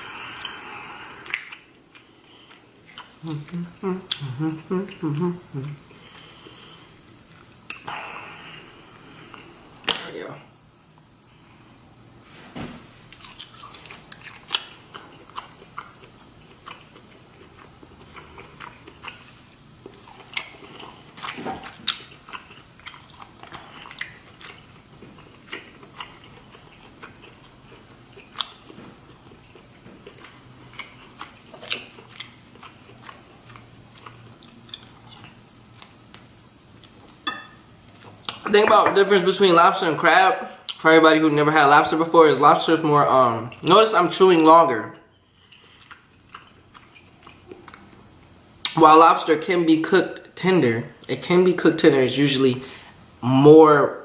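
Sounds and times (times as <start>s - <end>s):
chewing and lip smacking: 0.3s - 5.8s, 13.1s - 37.2s, 37.9s - 38.5s, 45.3s - 48.8s.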